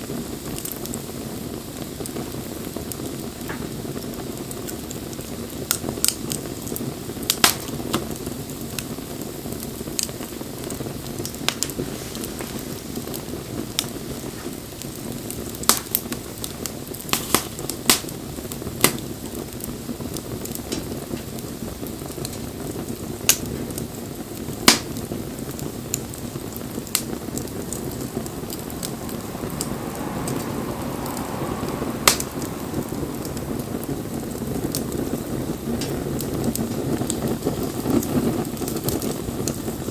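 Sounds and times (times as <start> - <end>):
wood fire crackling: 0.0 - 39.9
sharp pops: 24.6 - 25.0, 32.0 - 32.5.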